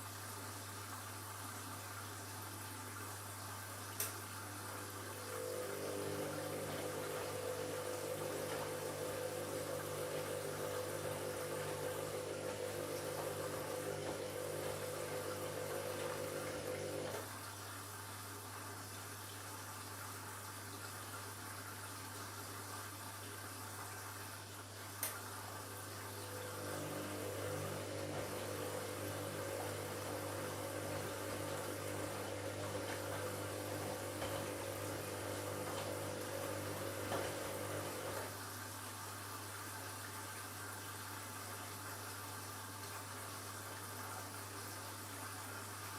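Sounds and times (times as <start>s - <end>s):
running water: 0.0s - 45.9s
washing machine motor hum: 4.3s - 17.5s, 23.9s - 39.0s.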